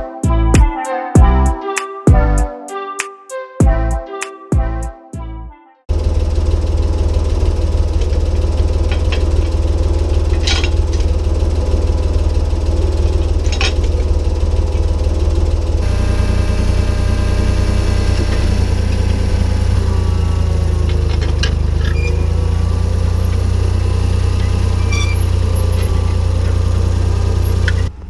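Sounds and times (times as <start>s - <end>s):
tractor engine under load: 5.9s - 28.0s.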